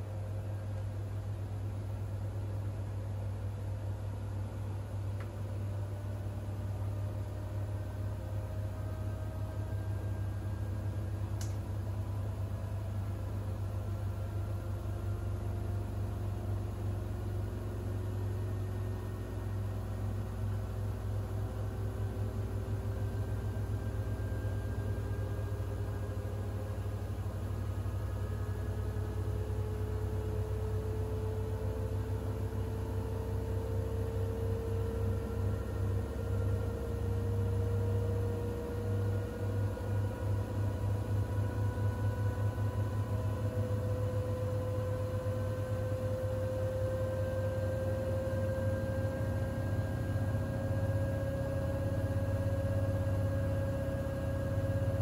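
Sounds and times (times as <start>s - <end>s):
washing machine running: 0.0s - 55.0s
short tick: 11.4s - 11.6s.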